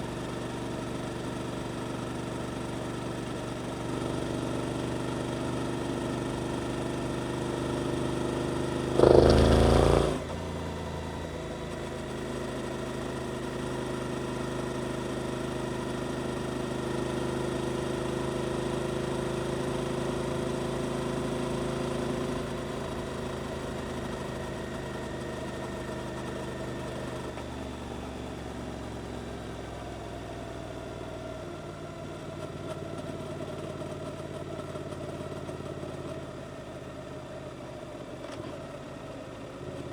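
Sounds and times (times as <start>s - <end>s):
motorcycle engine running: 0.0s - 39.9s
loud engine burst: 9.0s - 10.2s.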